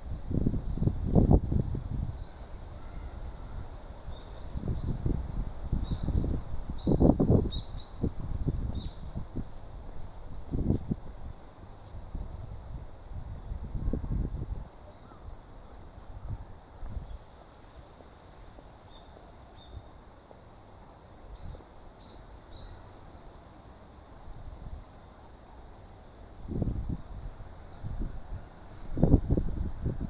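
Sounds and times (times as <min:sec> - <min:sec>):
high-pitched insect chorus: 0:00.0 - 0:12.1, 0:14.1 - 0:28.0
wind buffeting microphone: 0:00.1 - 0:02.2, 0:04.4 - 0:11.3, 0:12.0 - 0:14.7, 0:26.4 - 0:30.0.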